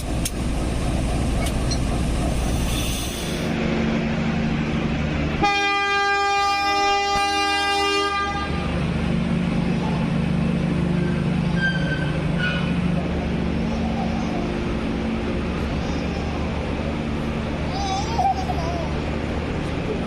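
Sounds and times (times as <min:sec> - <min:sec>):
train rumbling: 0:00.0 - 0:20.0
train horn blast: 0:05.4 - 0:08.9.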